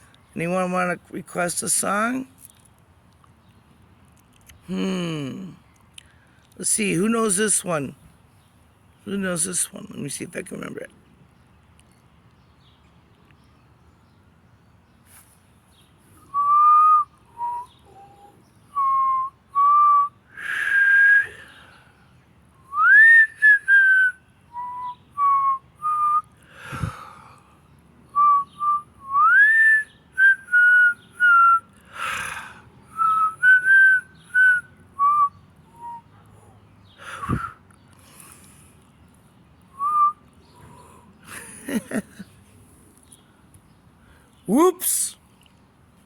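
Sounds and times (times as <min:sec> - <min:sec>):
person whistling a tune: 0:16.3 - 0:18.2, 0:18.8 - 0:21.3, 0:22.7 - 0:26.2, 0:28.2 - 0:31.6, 0:33.0 - 0:36.1, 0:37.1 - 0:37.6, 0:39.8 - 0:40.2
breaths between phrases: 0:26.6 - 0:27.4.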